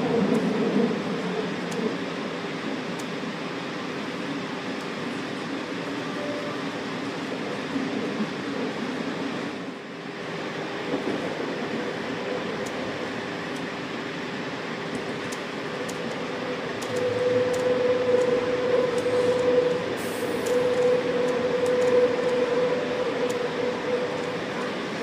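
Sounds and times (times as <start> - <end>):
electric train running rumble: 0.0 - 25.0
train motor whine: 16.7 - 25.0.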